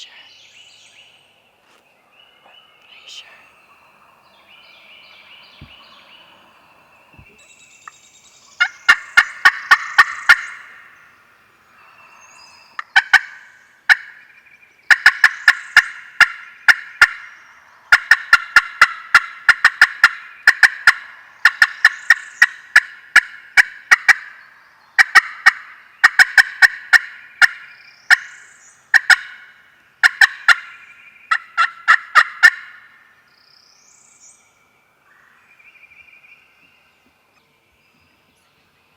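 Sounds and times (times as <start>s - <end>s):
turkeys gobbling: 8.6s - 11.0s, 12.8s - 14.2s, 14.9s - 17.3s, 17.9s - 24.4s, 25.0s - 28.3s, 28.9s - 30.7s, 31.3s - 32.9s.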